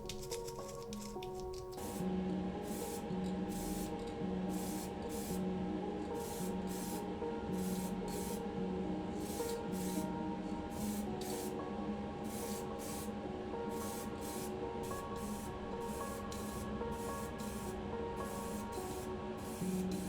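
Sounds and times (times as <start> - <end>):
spray paint hissing: 0.0 - 2.0, 2.7 - 5.4, 6.2 - 7.0, 7.6 - 8.4, 9.2 - 10.1, 10.7 - 11.6, 12.3 - 13.1, 13.7 - 20.0.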